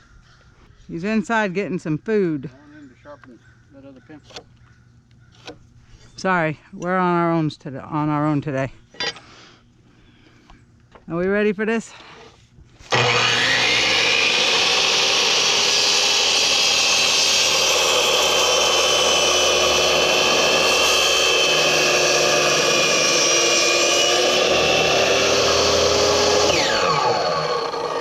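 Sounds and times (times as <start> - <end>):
power saw cutting wood: 12.8 - 28.0.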